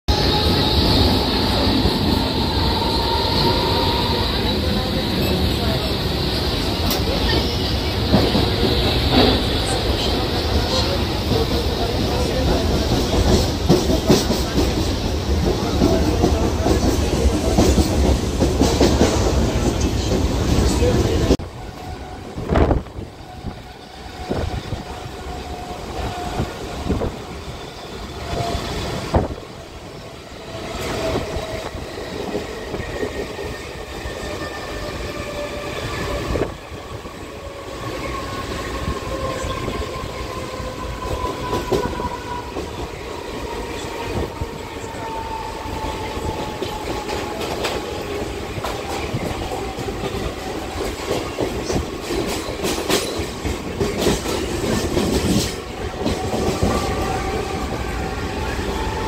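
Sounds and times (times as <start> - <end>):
train wheels clattering over joints: 45.7 - 57.8.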